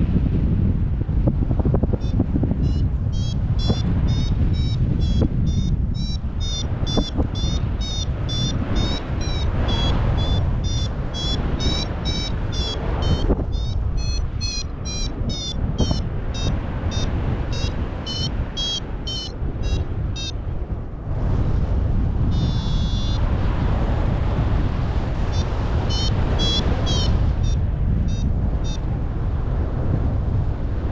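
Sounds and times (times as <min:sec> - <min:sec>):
wind on microphone: 0:00.0 - 0:30.9
variometer beeping: 0:02.0 - 0:20.4, 0:22.3 - 0:23.2, 0:25.3 - 0:28.8.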